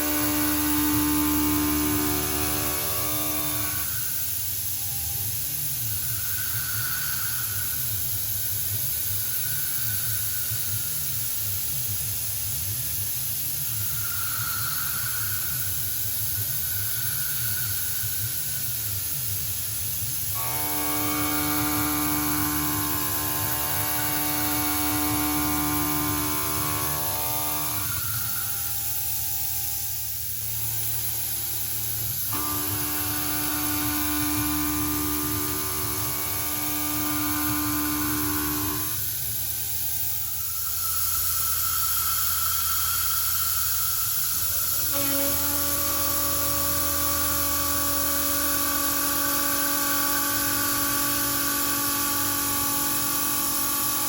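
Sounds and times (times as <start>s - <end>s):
milling machine cutting: 0.0s - 4.2s, 20.4s - 29.3s, 30.6s - 54.0s
pitched cutting whine: 0.0s - 12.3s, 20.3s - 54.0s.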